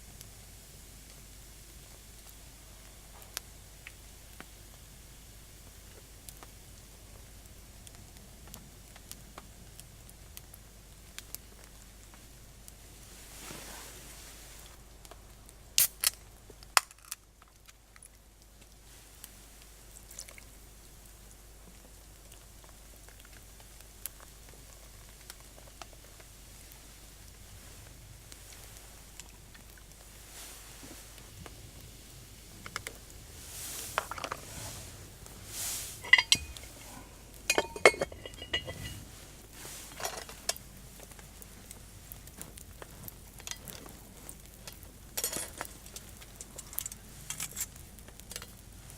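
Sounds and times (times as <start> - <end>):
metal cookware clattering: 35.9 - 39.0.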